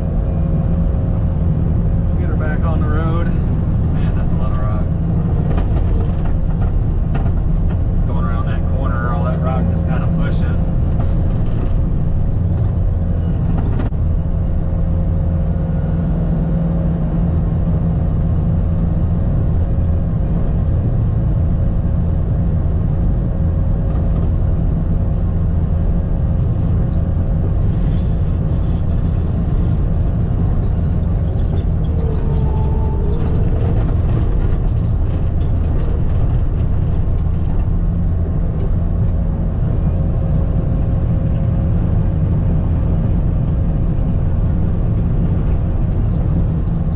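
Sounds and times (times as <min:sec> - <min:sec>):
diesel engine under load: 0:00.0 - 0:46.9.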